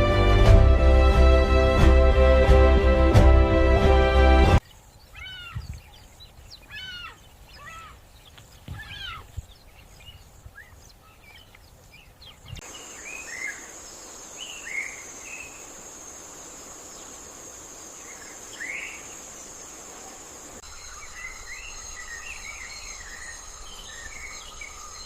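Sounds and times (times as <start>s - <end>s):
birds chirping: 4.6s - 25.0s
crickets droning: 12.6s - 25.0s.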